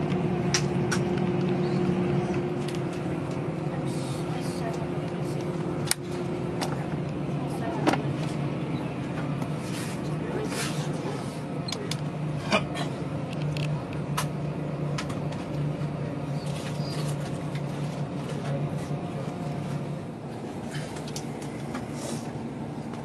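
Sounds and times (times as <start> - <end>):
vehicle engine droning: 0.0 - 23.0.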